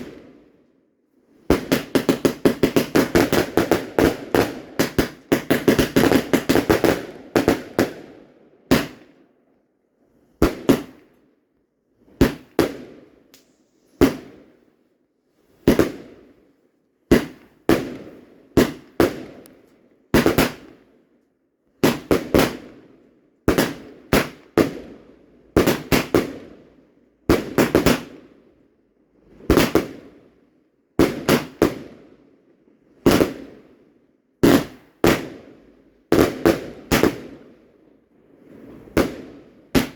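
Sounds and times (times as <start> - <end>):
fireworks crackling: 1.5 - 8.0, 12.2 - 14.3
fireworks bangs echoing: 1.5 - 9.2, 10.4 - 11.1, 12.2 - 13.1, 14.0 - 14.5, 15.6 - 16.3, 17.1 - 19.4, 20.1 - 20.8, 21.8 - 22.7, 23.5 - 24.8, 29.5 - 30.0, 33.0 - 33.5, 34.4 - 35.4, 36.1 - 37.4, 38.6 - 39.9.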